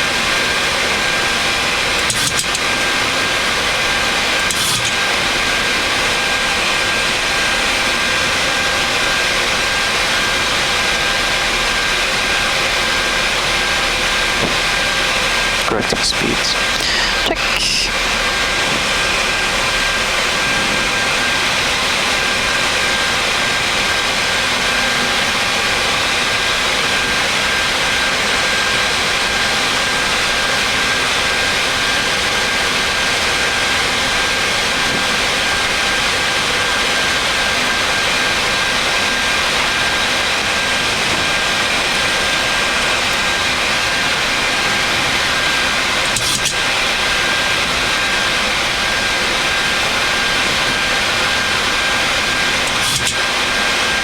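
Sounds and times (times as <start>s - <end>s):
airflow and engine noise: 0.0s - 54.0s.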